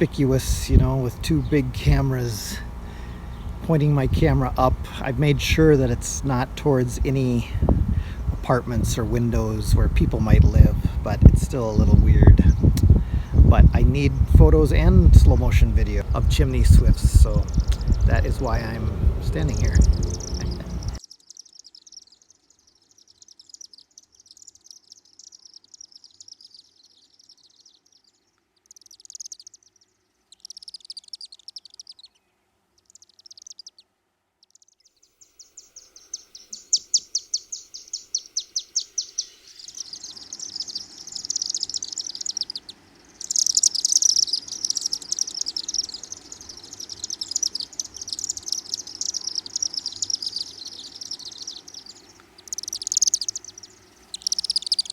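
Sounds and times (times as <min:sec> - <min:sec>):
low steady rumble: 0:00.0 - 0:21.0
chimney swifts chittering: 0:00.0 - 0:32.2, 0:32.8 - 0:33.8, 0:34.4 - 0:54.9.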